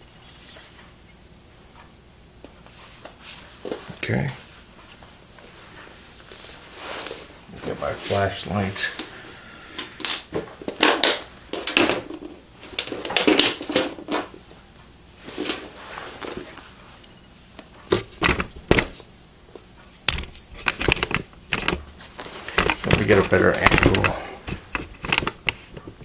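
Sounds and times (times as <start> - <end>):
hands handling computer parts: 15.2 - 26.0.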